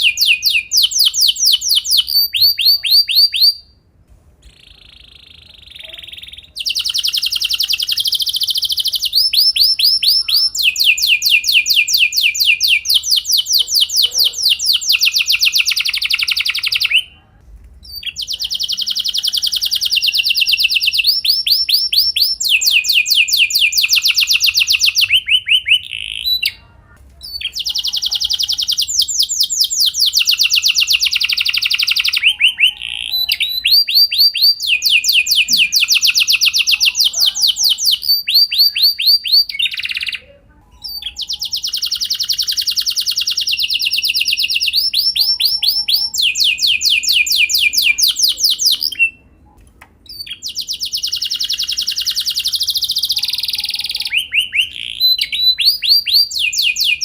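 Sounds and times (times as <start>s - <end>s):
canary singing rolled trills: 0.0s - 57.0s.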